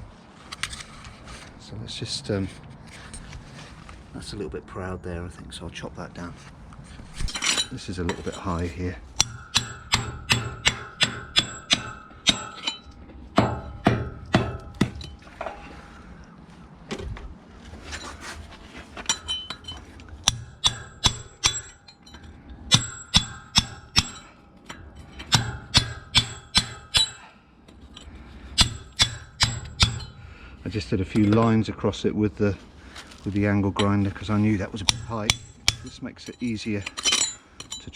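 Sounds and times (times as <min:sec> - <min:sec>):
hammer striking steel chisel: 0:09.2 - 0:15.2, 0:19.1 - 0:27.3, 0:28.6 - 0:30.2, 0:34.8 - 0:37.9.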